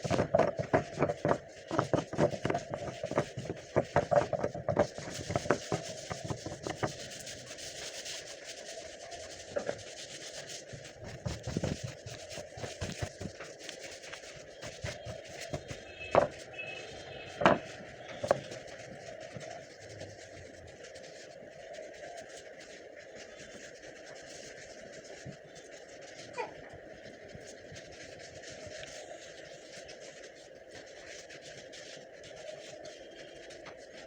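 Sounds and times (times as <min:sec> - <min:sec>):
taps and knocks on wood: 0:00.0 - 0:07.0, 0:14.9 - 0:16.4, 0:17.4 - 0:18.5
rubbing or scraping wood: 0:00.0 - 0:08.3, 0:09.2 - 0:20.5.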